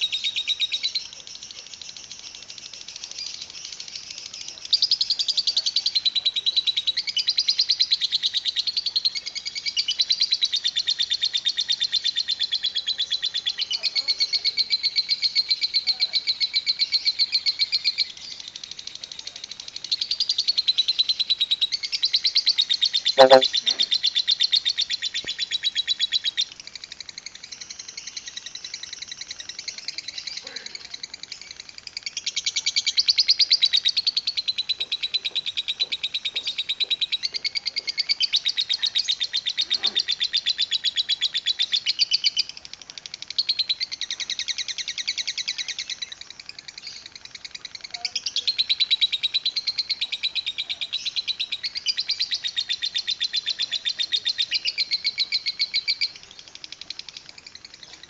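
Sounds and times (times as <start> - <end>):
lovebird chattering: 23.2 - 23.5.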